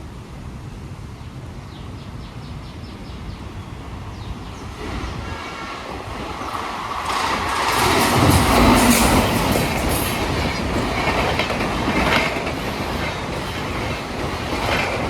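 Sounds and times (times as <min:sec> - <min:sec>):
train low rumble: 0:00.0 - 0:15.0
wheel and rail noise: 0:03.3 - 0:15.0.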